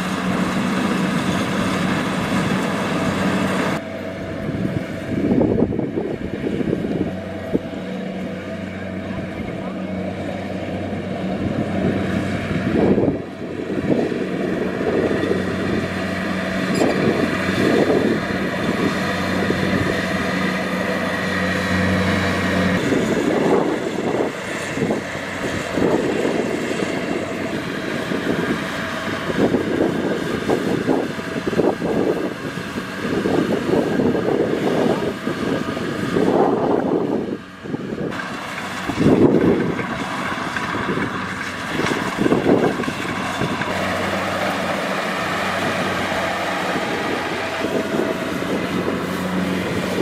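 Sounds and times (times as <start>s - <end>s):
combine harvester diesel drone: 0.0s - 50.0s
rushing surges: 38.1s - 50.0s.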